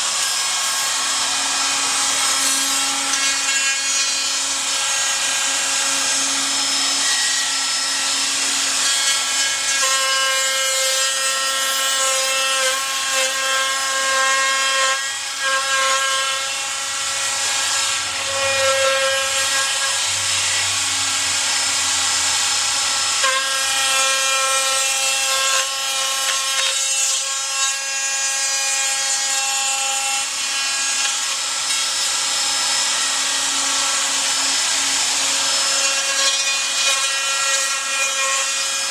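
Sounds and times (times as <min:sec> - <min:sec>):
hiss of router cutting wood: 0:00.0 - 0:26.8
wood router whining: 0:00.0 - 0:38.9.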